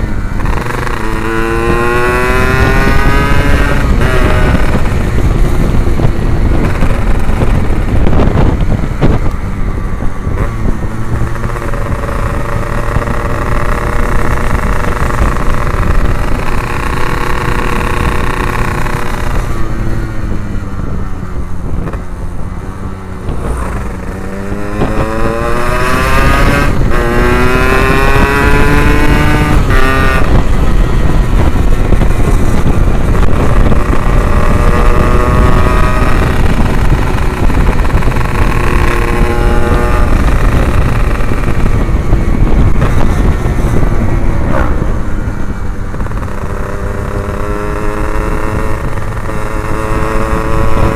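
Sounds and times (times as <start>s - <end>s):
gear changes: 0.0s - 50.9s
two-stroke motorcycle engine: 0.0s - 50.9s.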